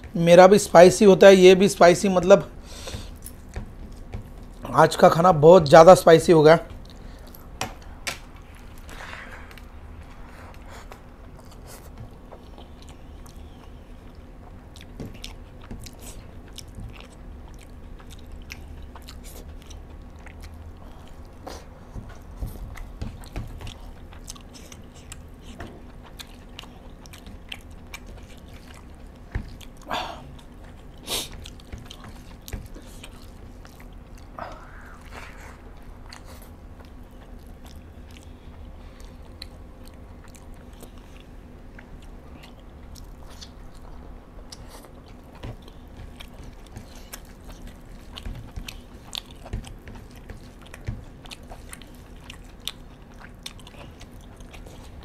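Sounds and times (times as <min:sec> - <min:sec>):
man chewing food: 0:01.8 - 0:05.0, 0:06.6 - 0:55.0.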